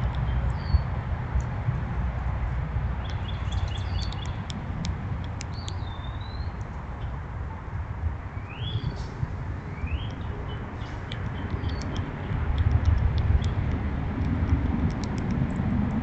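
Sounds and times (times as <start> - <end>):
songbirds calling: 0.0 - 1.5, 2.8 - 7.3, 8.2 - 16.0
steady low rumble: 0.0 - 16.0
sharp clicks: 3.0 - 7.1, 9.9 - 16.0.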